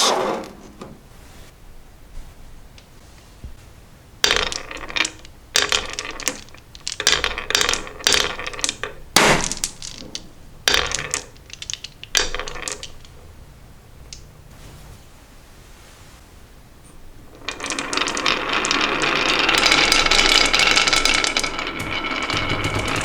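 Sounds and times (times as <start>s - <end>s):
marbles rattling down a marble run: 4.2s - 13.1s, 17.4s - 23.0s.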